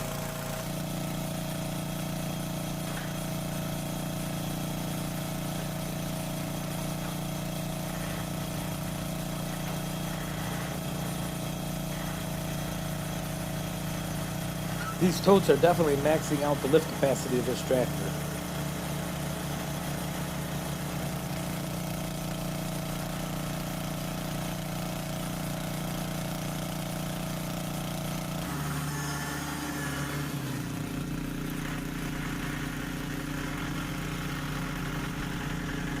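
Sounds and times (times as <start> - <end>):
tractor diesel engine running: 0.0 - 22.3, 30.4 - 36.0.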